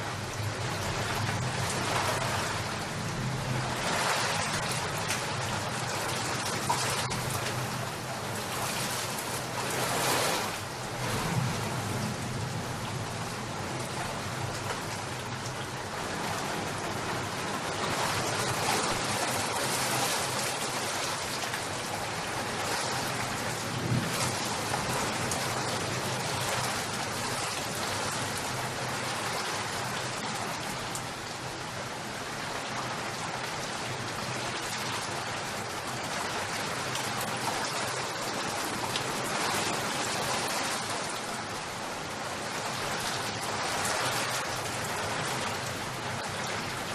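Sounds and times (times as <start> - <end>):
rain pattering: 0.0 - 46.9.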